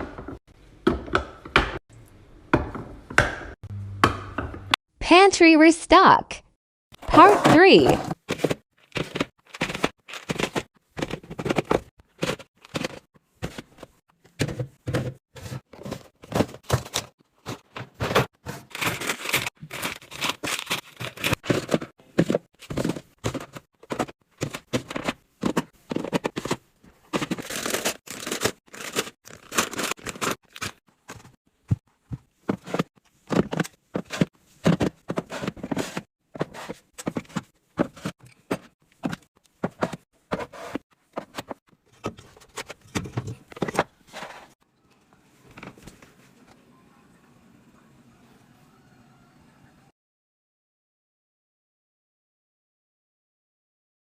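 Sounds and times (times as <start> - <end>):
packaging and containers handled: 7.1 - 44.6.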